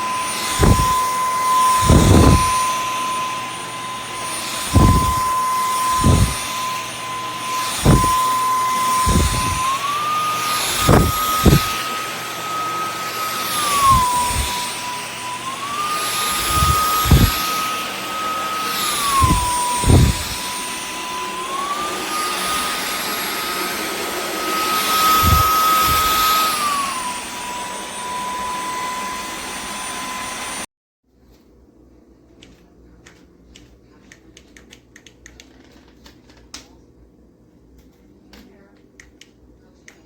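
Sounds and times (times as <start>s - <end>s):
vacuum cleaner motor whine: 0.0s - 30.7s.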